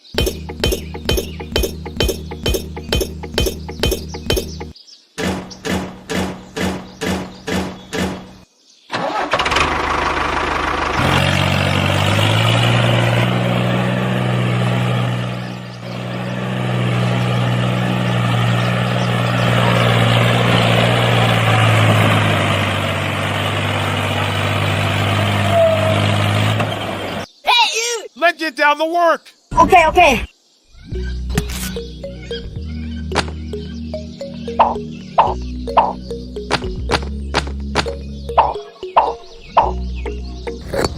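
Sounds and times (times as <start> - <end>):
engine running hum: 0.0 - 4.8, 9.0 - 27.3, 31.0 - 40.9
engine cranking: 8.9 - 12.6.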